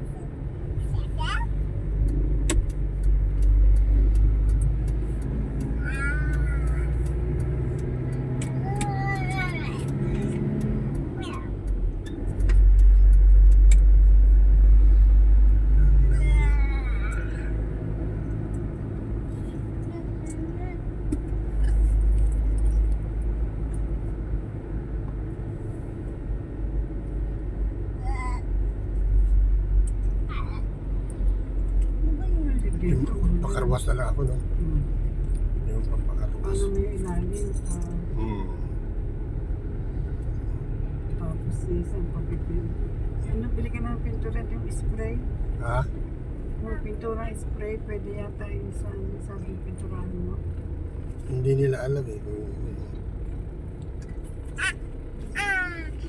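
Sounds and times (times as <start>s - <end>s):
vehicle engine humming: 0.0s - 56.0s
short high-pitched cry: 54.6s - 54.8s.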